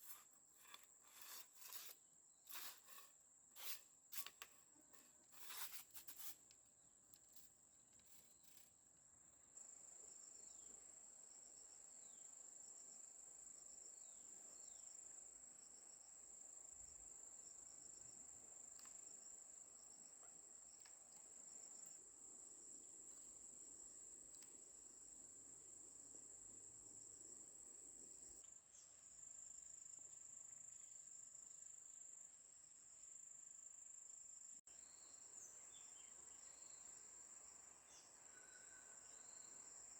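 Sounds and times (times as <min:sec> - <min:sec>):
insects trilling: 0:34.7 - 0:39.9.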